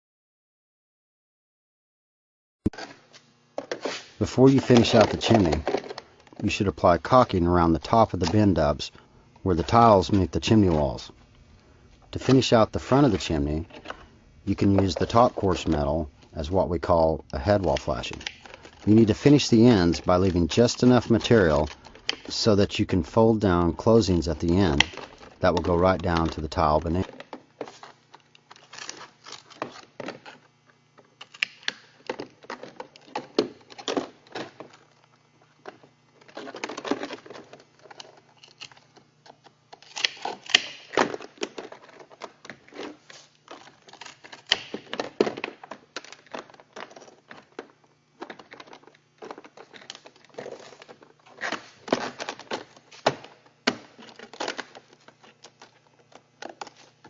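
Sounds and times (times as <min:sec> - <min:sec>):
sheet metal clicking and crinkling: 0:04.4 - 0:08.7, 0:12.1 - 0:57.0.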